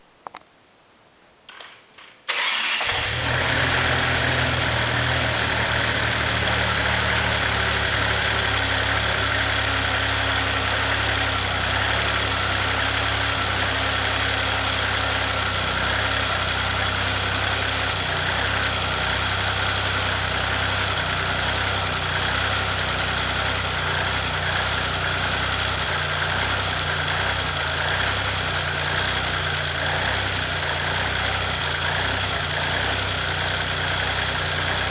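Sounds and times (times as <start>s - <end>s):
short clicks: 1.5s - 2.8s
car engine starting and idling: 2.3s - 34.9s.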